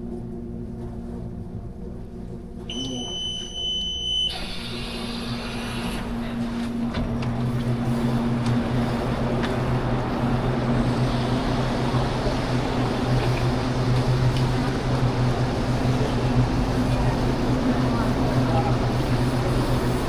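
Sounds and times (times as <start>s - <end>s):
train rumble and motor hum: 0.0s - 20.0s
high electronic beep: 2.7s - 4.4s.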